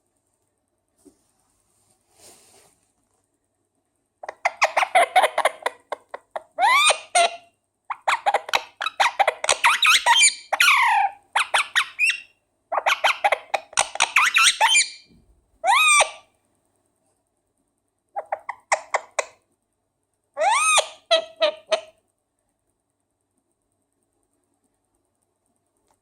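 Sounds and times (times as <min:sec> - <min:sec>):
parakeet chattering and squawking: 0:04.2 - 0:16.3, 0:18.2 - 0:19.4, 0:20.4 - 0:22.0.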